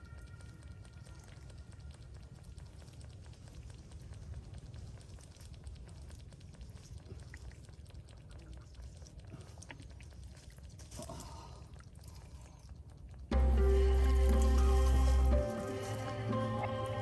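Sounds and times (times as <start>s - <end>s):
wet mud clicks and squelches: 0.0s - 13.4s
loud music: 13.3s - 17.0s.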